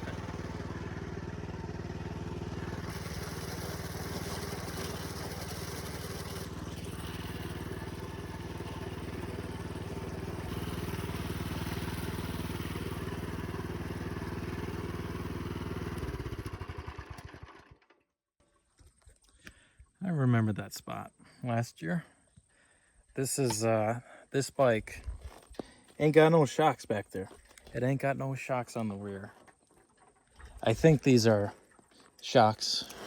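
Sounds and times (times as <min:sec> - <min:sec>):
small engine running: 0:00.0 - 0:18.0, 0:32.6 - 0:33.0.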